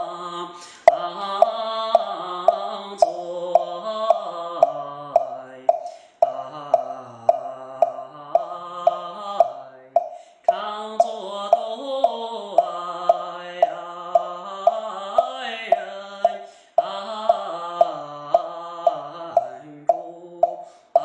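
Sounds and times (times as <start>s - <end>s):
steady wooden knocks: 0.9s - 10.2s, 11.0s - 21.0s
man softly chanting: 17.2s - 20.5s.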